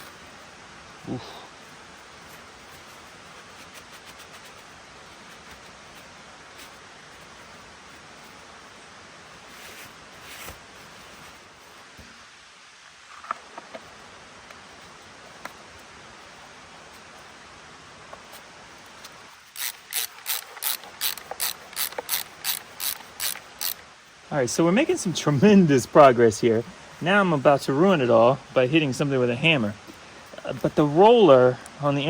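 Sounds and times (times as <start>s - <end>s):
faint steady hiss: 0.0s - 32.0s
hand tool rasping on chainsaw: 19.6s - 23.8s.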